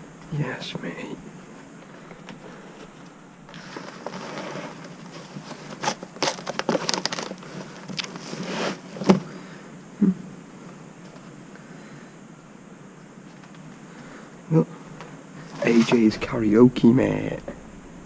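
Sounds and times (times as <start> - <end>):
debris crunching and crinkling: 2.8 - 9.3.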